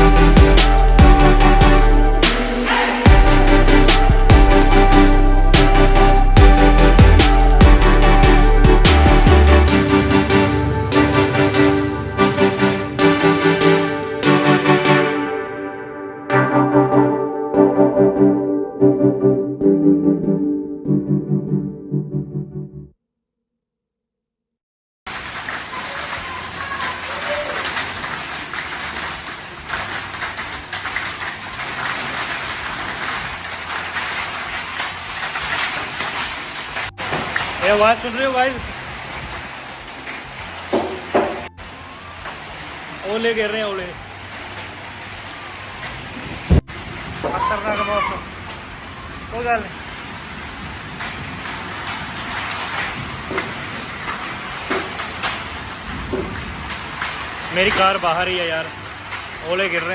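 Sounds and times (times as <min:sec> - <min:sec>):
heavy rain falling: 0:00.0 - 0:15.6, 0:25.1 - 0:59.9
hailstones clicking on surfaces: 0:25.1 - 0:39.4, 0:49.4 - 0:59.3.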